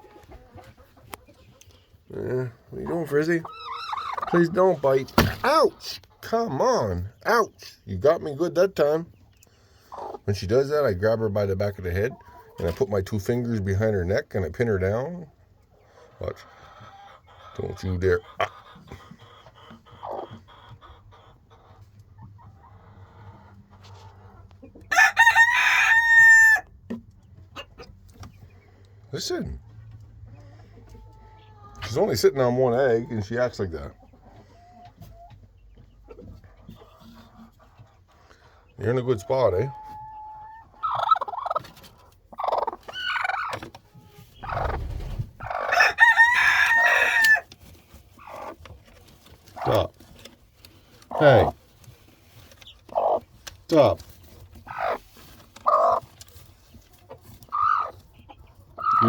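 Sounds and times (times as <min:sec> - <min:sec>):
chickens squawking: 0:00.0 - 0:13.9, 0:14.9 - 0:26.8, 0:30.1 - 0:59.0
faint hen clucking: 0:00.0 - 0:47.6, 0:48.2 - 0:48.8, 0:49.4 - 0:50.3, 0:51.0 - 0:59.0
rooster crowing: 0:24.9 - 0:26.6, 0:45.7 - 0:47.4.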